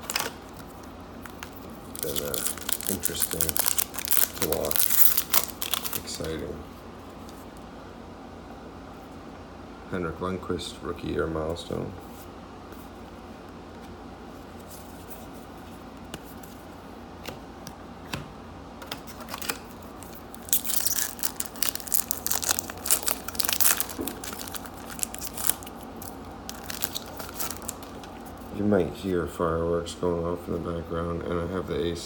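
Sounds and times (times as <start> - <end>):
foil pack crinkling: 0.0 - 6.4, 19.2 - 28.5
air conditioner hum: 0.0 - 32.0.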